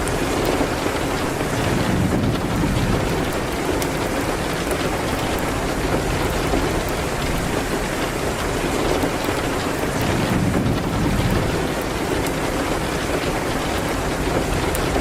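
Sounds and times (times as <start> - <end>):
rain hitting a window: 0.0 - 15.0
wood fire crackles: 0.0 - 15.0.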